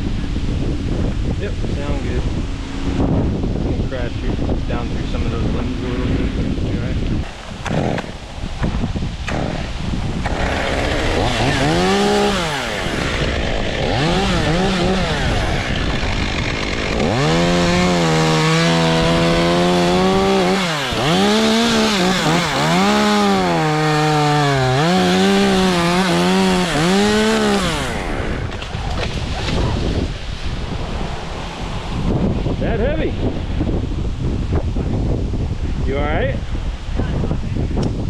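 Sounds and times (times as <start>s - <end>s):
wind hiss: 0.0s - 38.0s
chainsaw cutting wood: 7.2s - 29.8s.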